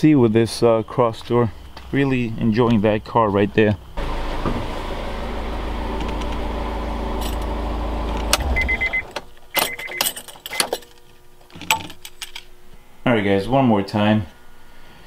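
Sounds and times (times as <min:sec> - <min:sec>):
car engine idling: 0:04.0 - 0:09.2
keys jangling: 0:07.2 - 0:07.5, 0:09.6 - 0:12.4
short electronic beeps: 0:08.5 - 0:10.7.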